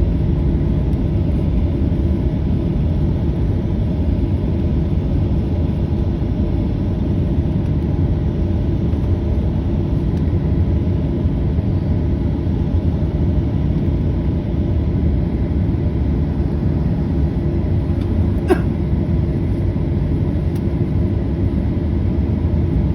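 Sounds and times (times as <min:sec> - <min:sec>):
jet engines rumbling: 0:00.0 - 0:22.9.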